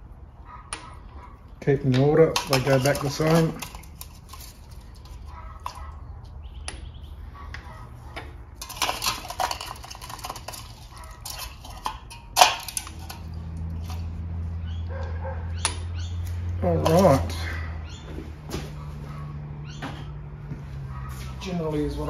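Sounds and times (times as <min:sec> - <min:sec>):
small metal parts clinking: 0:02.3 - 0:05.9, 0:08.6 - 0:14.3.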